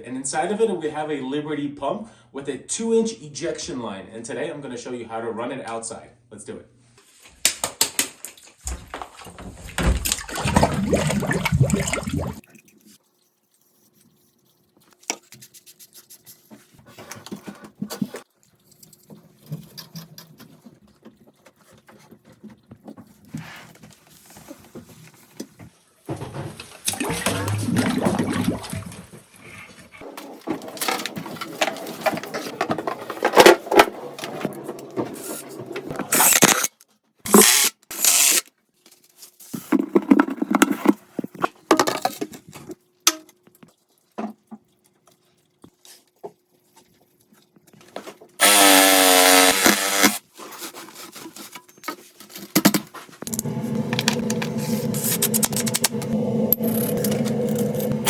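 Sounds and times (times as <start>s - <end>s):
scraping and knocking: 30.0s - 36.1s, 39.6s - 42.1s, 53.2s - 58.0s
power tool running: 48.4s - 50.2s, 53.3s - 58.0s
steady pitched sound: 53.3s - 58.0s.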